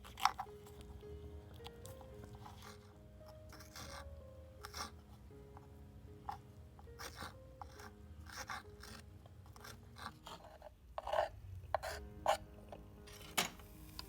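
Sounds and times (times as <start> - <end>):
kitchen tools scraping cutting board: 9.6 - 12.4, 13.1 - 13.7.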